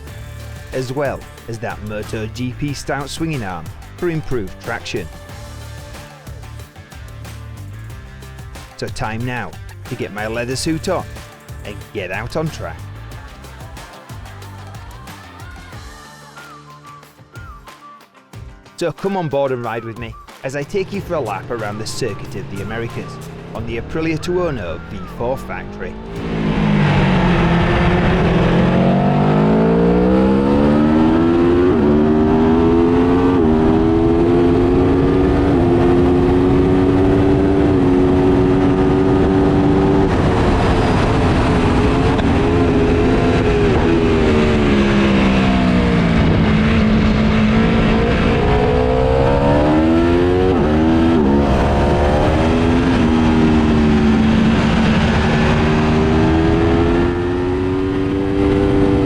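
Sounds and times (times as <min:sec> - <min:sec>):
motorcycle engine revving: 0:21.5 - 0:24.2, 0:25.0 - 0:59.0.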